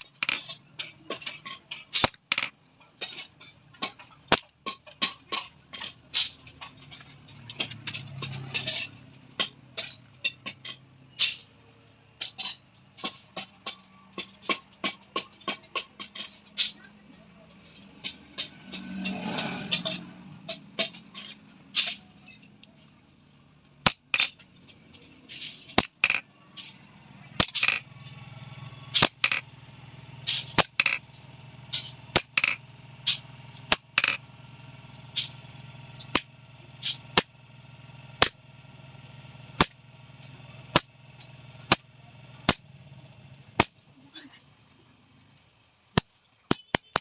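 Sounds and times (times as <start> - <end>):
hammer striking steel: 0.0 - 11.5, 12.2 - 16.9, 17.7 - 22.6, 23.8 - 24.5, 25.2 - 28.1, 28.9 - 29.4, 30.2 - 31.0, 31.6 - 34.2, 36.0 - 37.4, 38.2 - 38.4, 39.6 - 39.8, 40.7 - 42.7, 43.6 - 43.8, 46.0 - 47.0.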